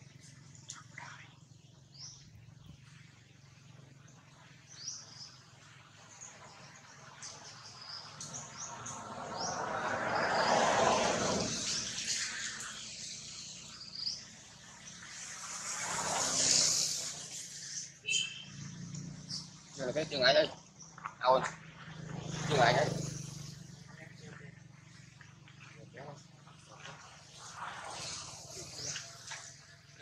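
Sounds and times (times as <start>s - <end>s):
small birds chirping: 0.0s - 30.0s
broad rushing noise: 6.4s - 20.2s, 26.6s - 30.0s.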